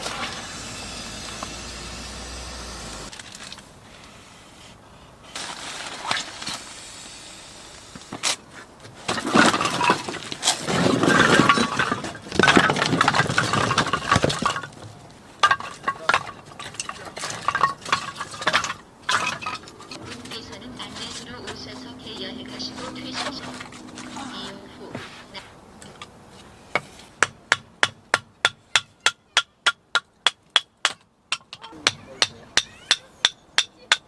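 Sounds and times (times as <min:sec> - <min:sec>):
hard objects clattering: 0:08.2 - 0:28.0.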